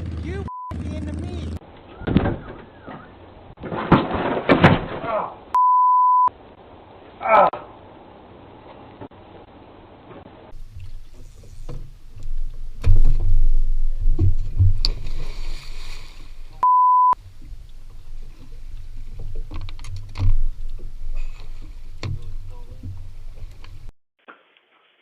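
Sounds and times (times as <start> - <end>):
censor bleep: 0.5 - 0.8, 5.6 - 6.3, 16.6 - 17.2
heavy low thumps and knocking: 12.2 - 14.9.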